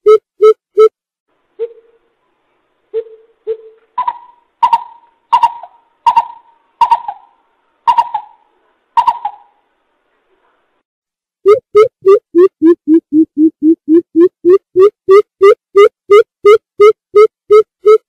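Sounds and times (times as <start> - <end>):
bird hooting: 1.6 - 2.0, 3.0 - 8.4, 9.0 - 9.5.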